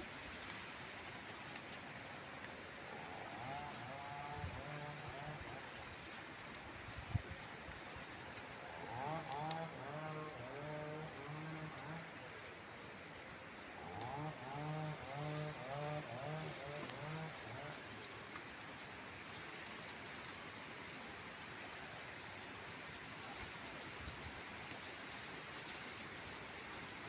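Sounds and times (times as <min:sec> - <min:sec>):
strong wind rushing through plants: 0:00.0 - 0:17.9.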